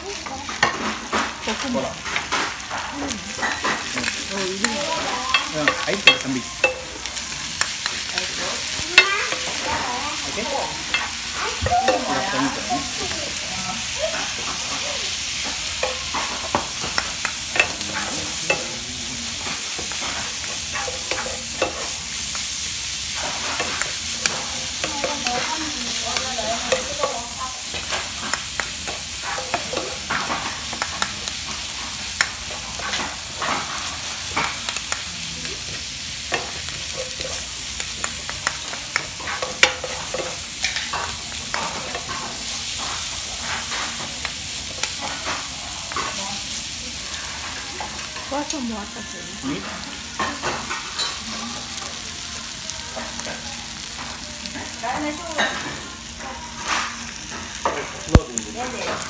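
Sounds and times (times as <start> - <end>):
rice sizzling on grill plate: 0.0 - 59.0
spatulas tapping and scraping: 0.2 - 10.0, 14.0 - 35.1, 35.7 - 46.2.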